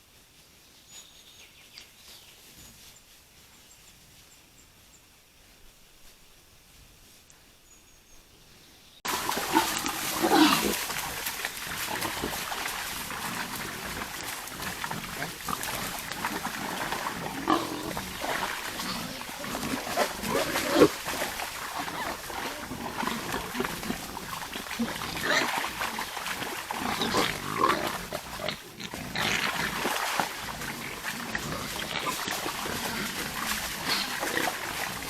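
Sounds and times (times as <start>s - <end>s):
wild boars grunting: 9.1s - 35.0s.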